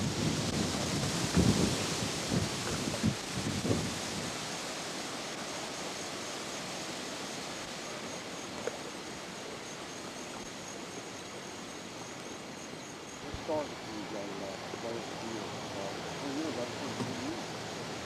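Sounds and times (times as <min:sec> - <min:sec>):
wind thumps on microphone: 0:00.0 - 0:04.6
floodwater rushing: 0:00.0 - 0:18.0.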